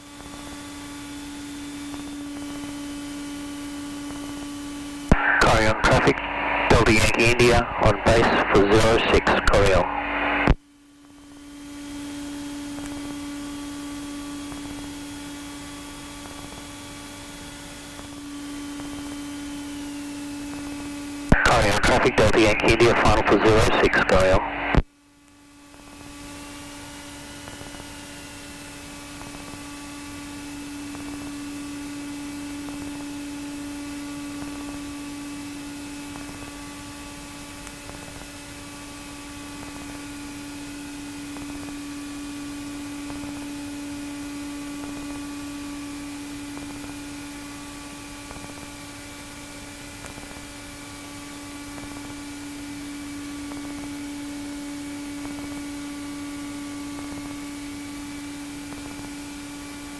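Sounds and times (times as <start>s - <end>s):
aircraft engine and airflow hum: 0.0s - 10.5s.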